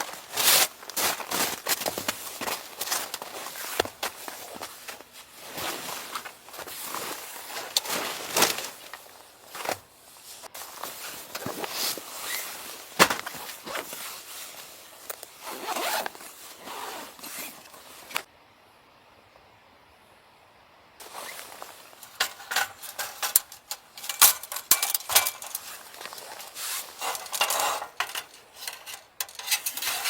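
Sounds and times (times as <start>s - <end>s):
rustling and scraping: 0.0s - 18.3s, 21.0s - 30.0s.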